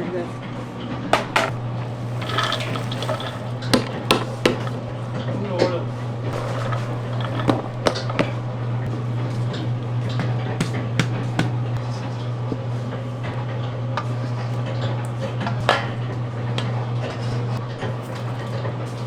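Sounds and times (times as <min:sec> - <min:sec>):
utensils and dishes clinking: 0:01.2 - 0:05.0, 0:06.3 - 0:08.9.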